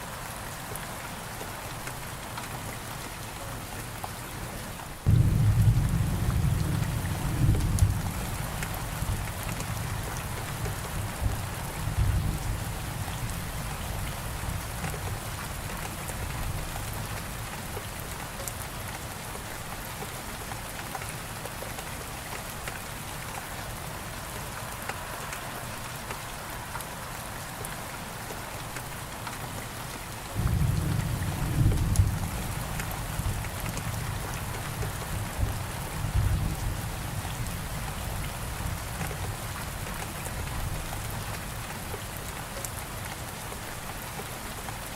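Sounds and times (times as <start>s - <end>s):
steady rain hiss: 0.0s - 44.9s
thunder rumbling: 5.1s - 12.8s, 30.4s - 36.9s.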